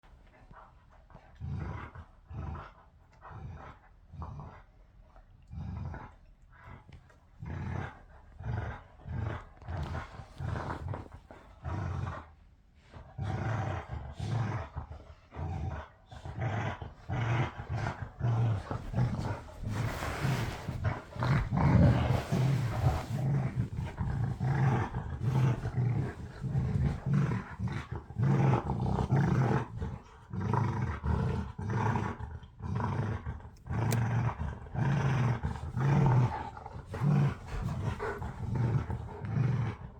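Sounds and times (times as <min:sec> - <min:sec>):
dogs growling: 0:05.5 - 0:39.9.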